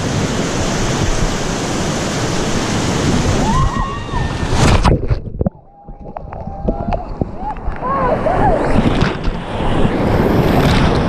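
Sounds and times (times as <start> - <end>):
whitewater rushing: 0.0 - 5.0.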